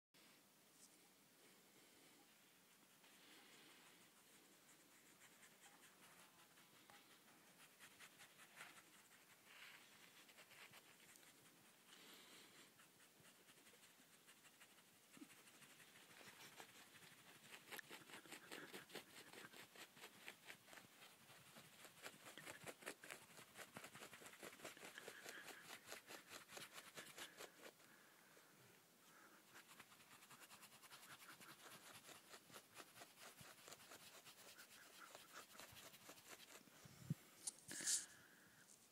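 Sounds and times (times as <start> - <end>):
rustling: 0.7 - 38.9
dog leg scratching: 29.6 - 36.6.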